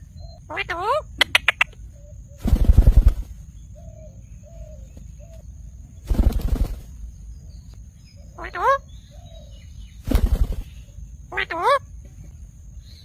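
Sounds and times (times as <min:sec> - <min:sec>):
parrot wings flapping: 0:02.4 - 0:03.4, 0:06.0 - 0:07.0, 0:10.0 - 0:10.8.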